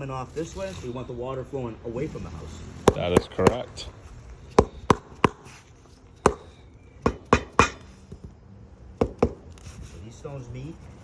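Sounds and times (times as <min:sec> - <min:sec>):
tool tapping flagstone: 0:02.9 - 0:03.7, 0:04.6 - 0:05.5, 0:06.2 - 0:07.9, 0:09.0 - 0:09.4.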